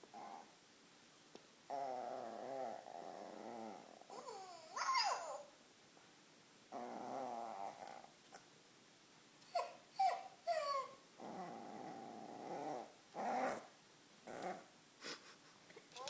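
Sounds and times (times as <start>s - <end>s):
puppy growling: 0.1s - 0.5s, 1.7s - 5.5s, 6.7s - 8.2s, 9.5s - 14.7s
puppy yipping: 4.2s - 5.5s, 9.5s - 11.0s.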